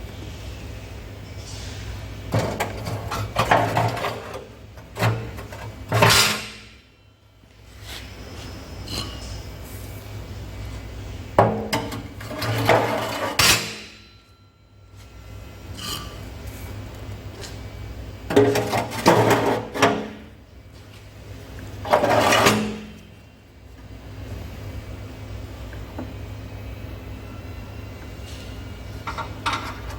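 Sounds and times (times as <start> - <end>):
clattering knocks and scraping: 2.3 - 6.7, 11.4 - 13.9, 18.3 - 20.3, 21.8 - 23.0.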